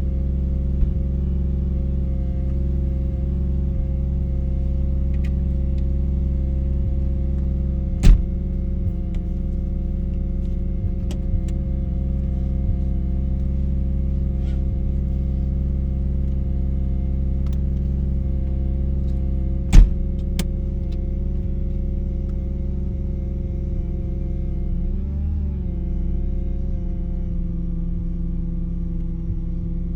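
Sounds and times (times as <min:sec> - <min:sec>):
rotary engine idling: 0:00.0 - 0:22.1.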